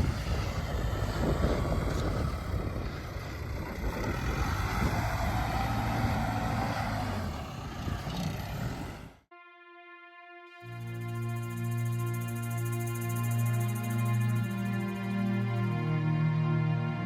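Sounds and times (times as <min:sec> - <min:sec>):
excavator diesel engine running: 0:00.0 - 0:09.2.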